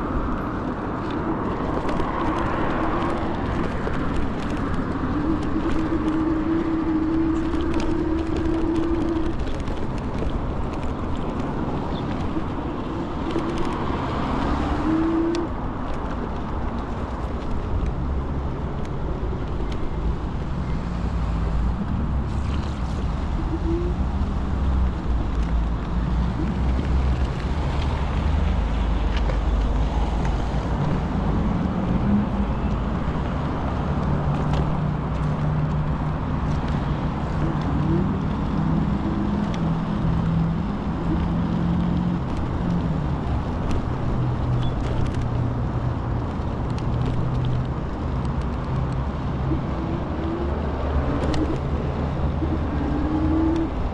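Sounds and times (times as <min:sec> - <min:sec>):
motor traffic: 0:00.0 - 0:53.9
wind and tyre rumble: 0:00.0 - 0:53.9.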